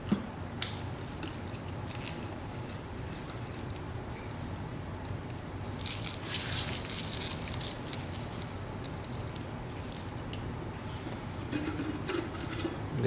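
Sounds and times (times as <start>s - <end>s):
plastic packaging crinkling: 0.6s - 3.9s, 5.8s - 8.4s.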